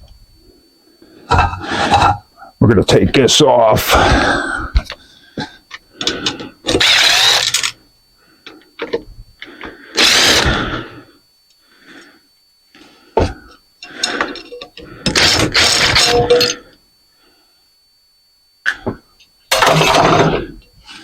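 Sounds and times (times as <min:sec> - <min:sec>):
metal fan parts clanking: 0:19.5 - 0:20.6.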